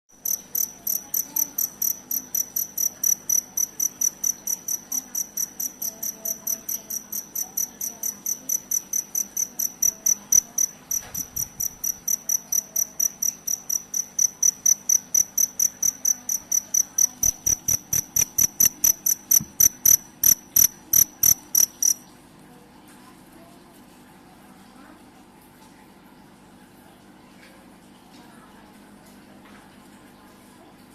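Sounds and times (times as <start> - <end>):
cricket chirping: 0.2 - 22.1.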